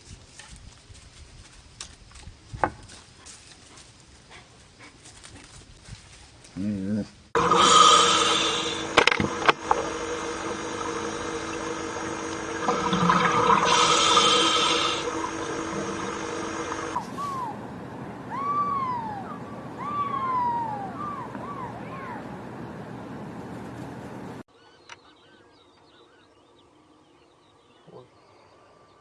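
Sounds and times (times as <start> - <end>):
held tones: 7.4 - 17.0
bird calling: 7.4 - 17.6, 18.3 - 22.2.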